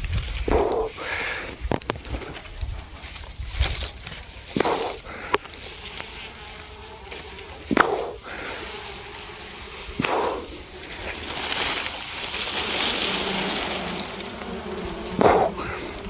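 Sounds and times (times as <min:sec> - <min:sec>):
bees buzzing: 0:00.5 - 0:16.0
hissing rush: 0:04.5 - 0:05.6, 0:07.4 - 0:16.0.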